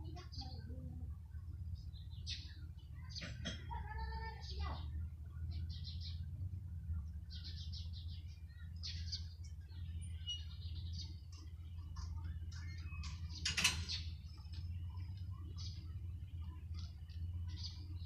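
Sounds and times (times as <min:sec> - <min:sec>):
small birds trilling: 0:00.0 - 0:18.0.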